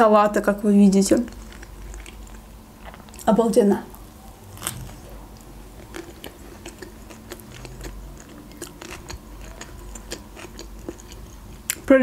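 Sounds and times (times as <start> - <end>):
wet chewing clicks: 1.1 - 3.3, 3.9 - 11.9
sandwich crunch: 3.9 - 11.8.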